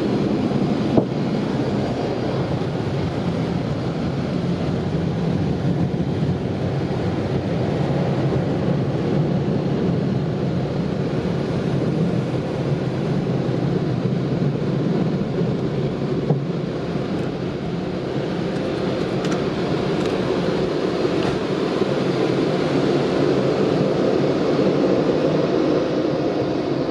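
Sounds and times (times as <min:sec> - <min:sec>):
car engine rumbling: 0:11.0 - 0:22.8.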